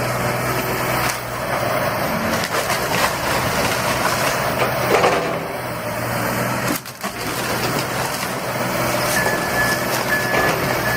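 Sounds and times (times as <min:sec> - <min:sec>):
heavy machinery engine running: 0:00.0 - 0:10.9
reversing beeper: 0:09.0 - 0:10.9.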